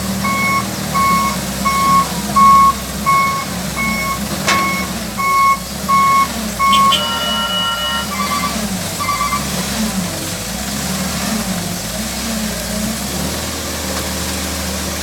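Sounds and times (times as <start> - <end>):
diesel engine running: 0.0 - 15.0
reversing alarm beeping: 0.2 - 9.5.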